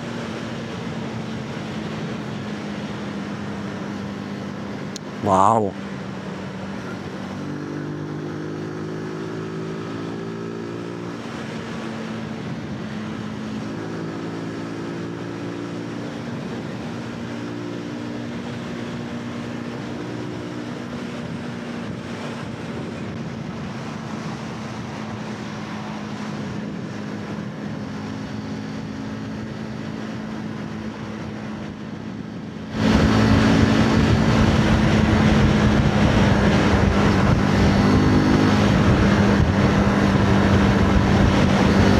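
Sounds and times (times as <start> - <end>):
wind noise: 20.9 - 41.9.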